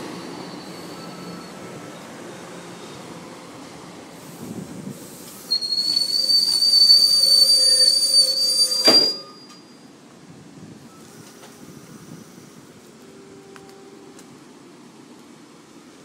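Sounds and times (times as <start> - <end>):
train wheels squealing: 0.0 - 3.1, 5.1 - 10.0.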